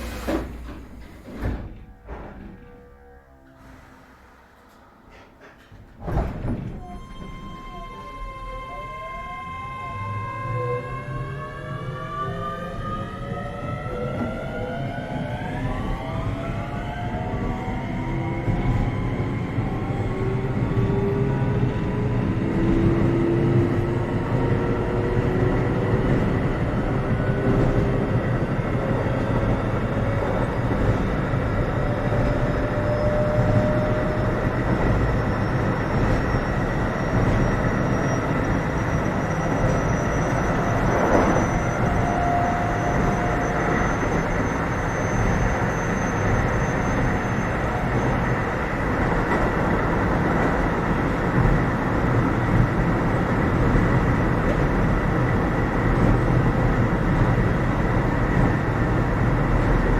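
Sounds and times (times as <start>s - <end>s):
train wheels rumbling on track: 0.0s - 2.8s, 10.6s - 59.9s.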